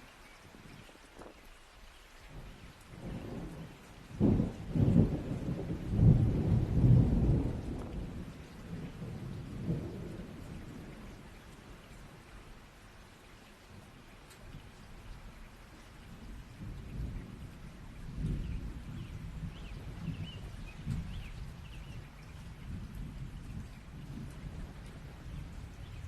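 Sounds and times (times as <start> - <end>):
steady rain: 0.0 - 26.0
thunder rolling: 3.0 - 10.9.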